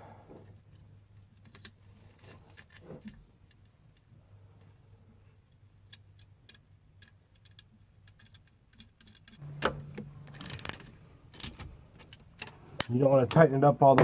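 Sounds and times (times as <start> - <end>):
small metallic clicks of nut: 1.4 - 4.0, 5.5 - 13.5
metal tools clattering: 11.4 - 14.0.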